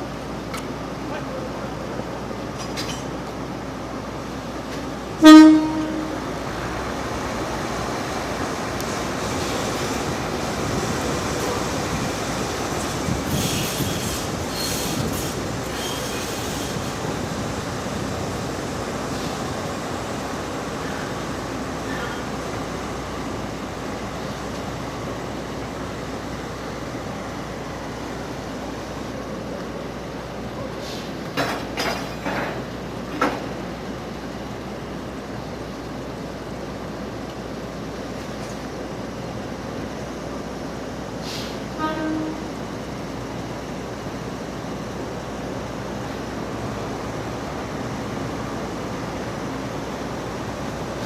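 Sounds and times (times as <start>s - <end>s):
train rolling over rails: 0.0s - 51.0s
train horn blast: 5.2s - 6.3s, 41.8s - 42.6s
high wheel squeals: 13.3s - 17.1s.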